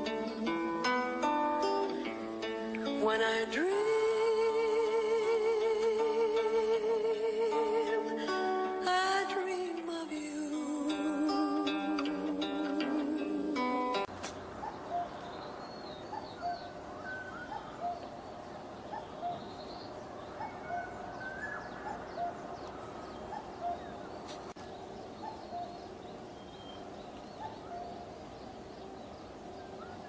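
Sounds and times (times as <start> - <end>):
steady background hiss: 0.0 - 30.0
birds chirping and twittering: 11.6 - 30.0.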